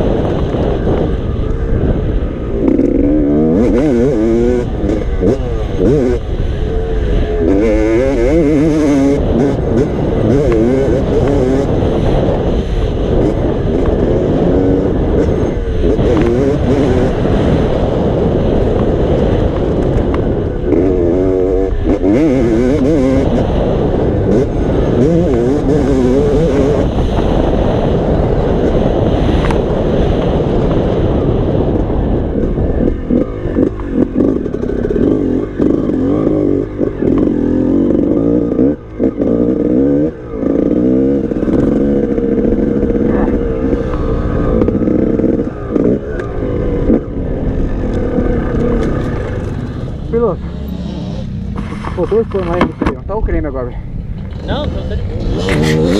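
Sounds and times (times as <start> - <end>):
motocross bike engine revving: 0.0 - 55.9.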